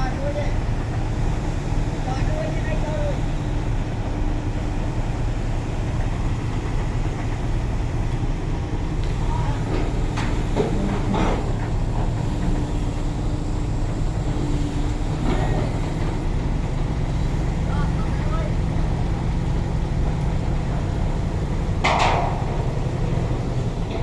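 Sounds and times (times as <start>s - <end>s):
truck engine rumbling: 0.0s - 24.0s
clicks and rattles: 21.8s - 24.0s.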